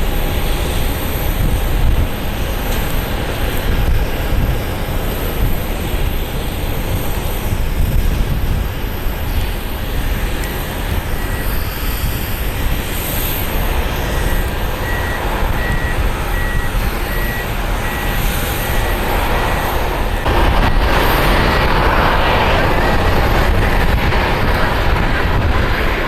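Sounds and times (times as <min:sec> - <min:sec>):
jet airliner rumble: 0:00.0 - 0:26.0
faint high beep: 0:10.4 - 0:11.7, 0:14.0 - 0:20.3.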